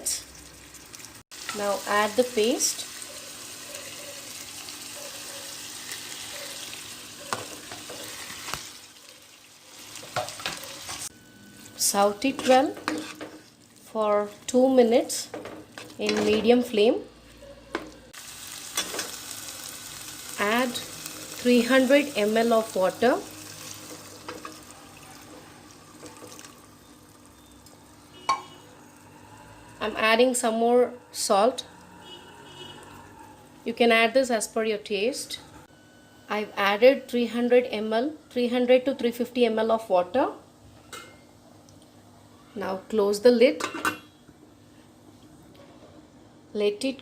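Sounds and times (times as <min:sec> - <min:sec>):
food sizzling in hot oil: 0:00.0 - 0:11.1, 0:18.2 - 0:30.4
water pouring into a pot: 0:26.1 - 0:26.7.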